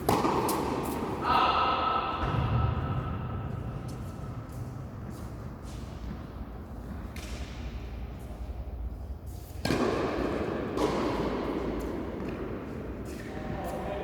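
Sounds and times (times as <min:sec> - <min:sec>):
tennis ball hits: 0:00.0 - 0:01.0, 0:09.6 - 0:11.3.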